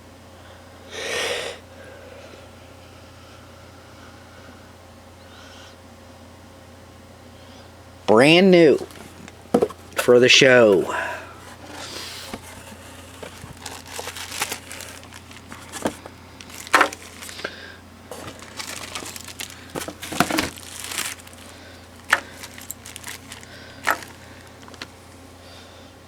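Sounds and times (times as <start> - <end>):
steady low hum: 0.0 - 26.0
plastic packaging crinkling: 8.7 - 10.8, 11.4 - 25.2.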